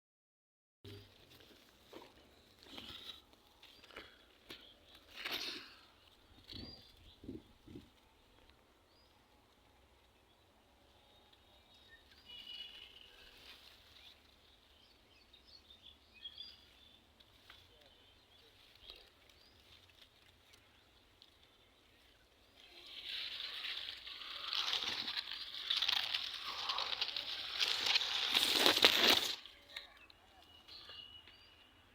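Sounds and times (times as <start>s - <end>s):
faint bird chirps: 10.2s - 17.0s, 17.7s - 31.9s
loud rustling hiss: 22.7s - 29.4s.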